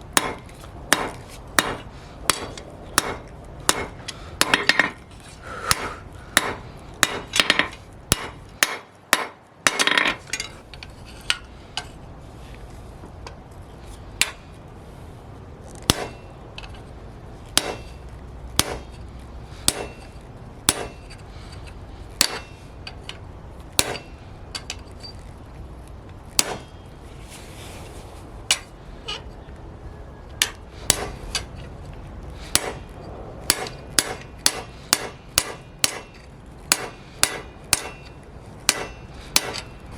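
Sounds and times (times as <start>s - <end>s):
hammer striking steel on anvil: 0.2s - 5.0s, 5.7s - 10.5s, 14.2s - 14.4s, 15.9s - 16.3s, 17.6s - 18.0s, 18.6s - 18.9s, 19.6s - 20.1s, 20.7s - 21.2s, 22.2s - 22.7s, 23.7s - 24.8s, 26.4s - 26.8s, 30.4s - 31.5s, 32.5s - 39.8s.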